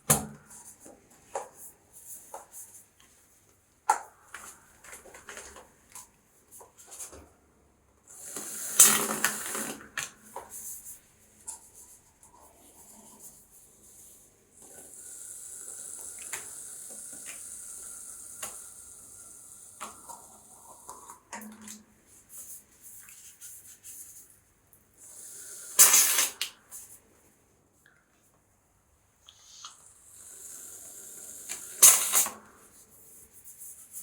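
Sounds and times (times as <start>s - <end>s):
aerosol can spraying: 25.2s - 26.9s, 29.4s - 32.8s.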